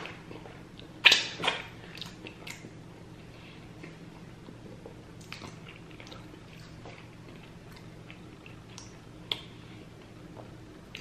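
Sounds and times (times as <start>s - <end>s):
low steady hum: 0.0s - 11.0s
chewing and wet mouth clicks: 0.8s - 2.7s, 5.2s - 9.5s.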